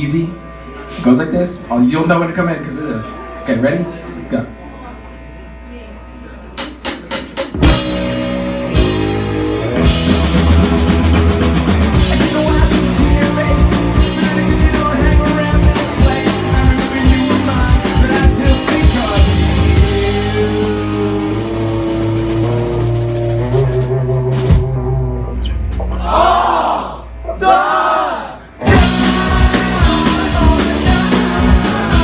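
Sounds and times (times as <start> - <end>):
bass guitar: 6.3 - 32.0
drums: 6.5 - 27.6, 28.4 - 32.0
electric guitar: 7.5 - 26.0, 28.6 - 32.0.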